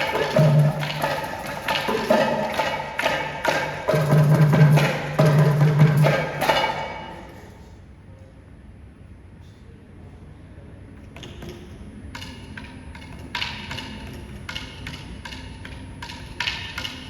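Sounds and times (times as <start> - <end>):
percussion ensemble playing: 0.0 - 7.6, 12.2 - 17.0.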